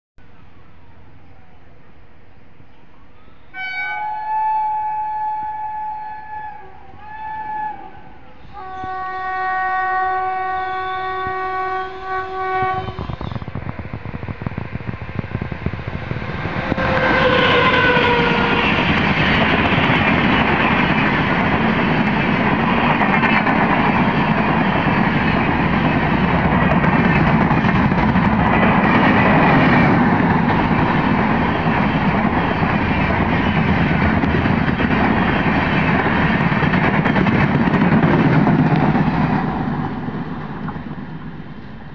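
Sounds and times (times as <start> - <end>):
train rumble: 0.2 - 41.9
train horn: 3.2 - 13.3, 16.7 - 18.9
train wheels clattering: 12.8 - 41.0.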